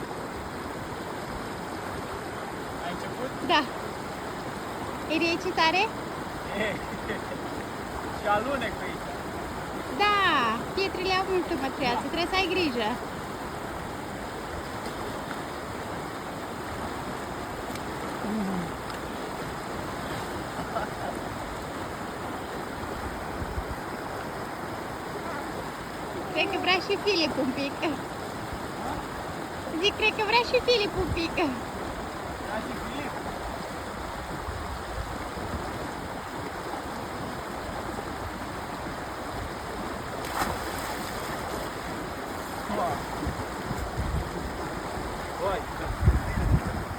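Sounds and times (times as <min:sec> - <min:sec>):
stream flowing over stones: 0:00.0 - 0:46.9
splash or knock: 0:40.2 - 0:41.7.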